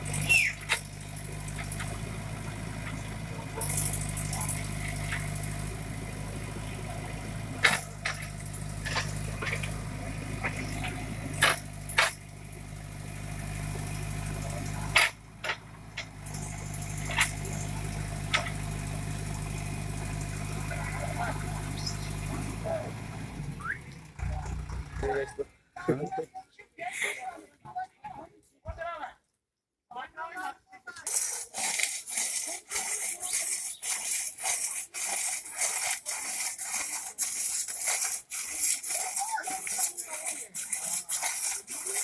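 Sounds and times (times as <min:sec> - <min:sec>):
diesel engine running: 0:00.0 - 0:26.1
sharp knocks and clanks: 0:07.4 - 0:12.4, 0:14.5 - 0:18.9.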